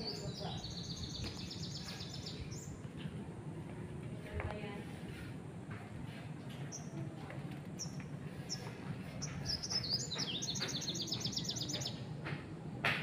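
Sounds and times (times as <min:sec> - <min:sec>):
songbird chirping and singing: 0:00.0 - 0:03.1, 0:06.5 - 0:12.4
low background noise: 0:00.0 - 0:13.0
sharp tap: 0:09.6 - 0:13.0.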